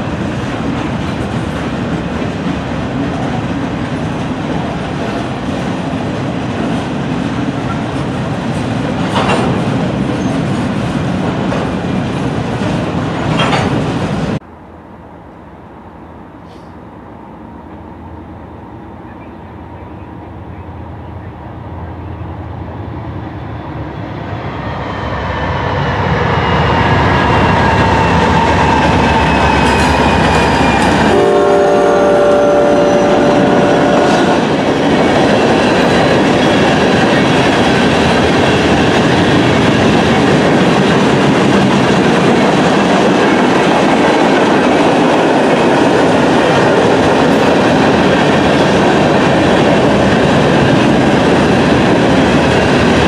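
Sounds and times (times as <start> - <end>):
train wheels clattering over rail joints: 0.0 - 14.4
freight train locomotives: 0.0 - 53.0
train horn: 26.4 - 34.6.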